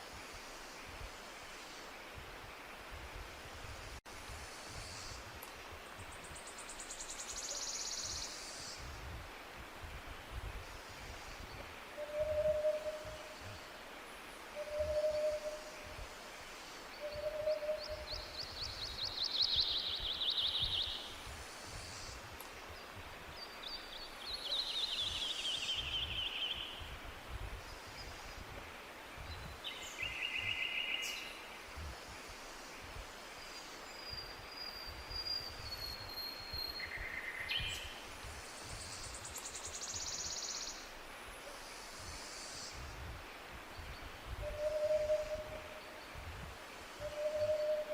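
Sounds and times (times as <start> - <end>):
steady hiss with low rumble: 0.0 - 47.9
songbirds trilling and whistling: 10.8 - 13.8, 14.5 - 16.1, 16.8 - 26.9, 43.7 - 46.2, 47.0 - 47.9.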